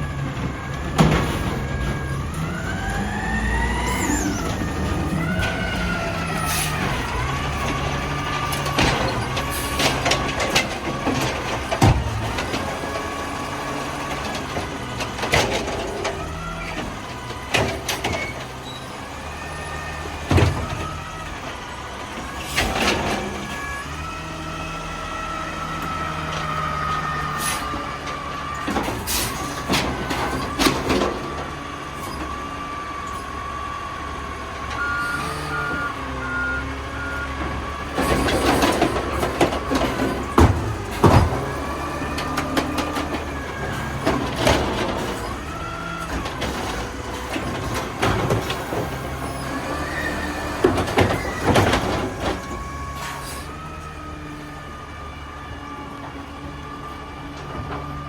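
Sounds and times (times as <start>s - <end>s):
reversing beeps: 34.8s - 37.5s
bangs and clanks: 37.4s - 53.4s.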